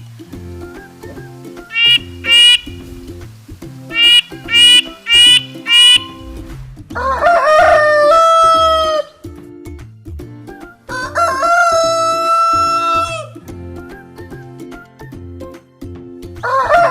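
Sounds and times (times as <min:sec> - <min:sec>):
background music with beat: 0:00.0 - 0:16.9
rooster crowing: 0:07.0 - 0:09.1, 0:10.9 - 0:13.3, 0:16.4 - 0:16.9.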